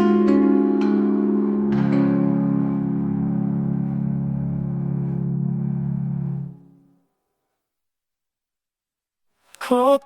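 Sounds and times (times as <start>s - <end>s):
sustained low chord music: 0.0s - 7.0s.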